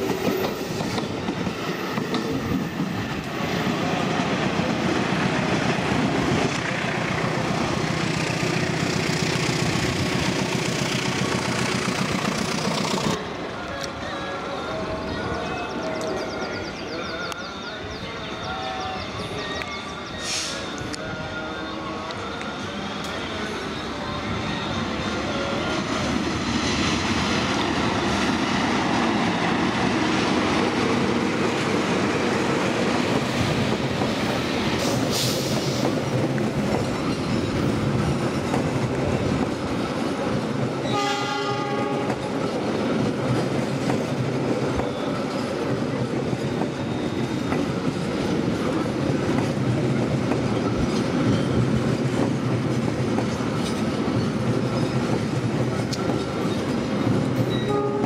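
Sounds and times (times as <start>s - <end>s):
train rumbling past: 0.0s - 58.0s
train horn blast: 40.9s - 42.2s, 57.6s - 58.0s
high wheel squeal: 46.4s - 47.8s.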